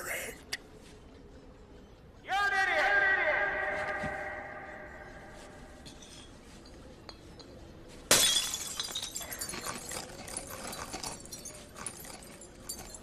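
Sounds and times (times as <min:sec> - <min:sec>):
glass fragments clinking: 0:08.1 - 0:13.0
glass shattering: 0:08.1 - 0:13.0.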